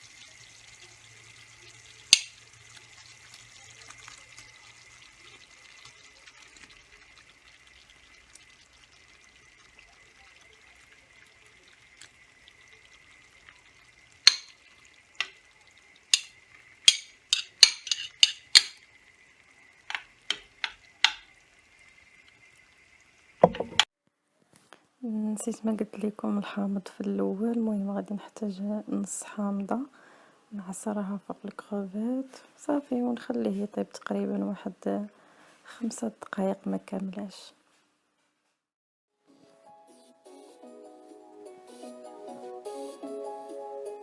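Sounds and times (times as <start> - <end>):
sauce sizzling in pot: 0.0 - 23.9
utensil knocking cookware: 1.2 - 3.0, 11.6 - 18.9, 19.8 - 21.4, 23.4 - 23.8.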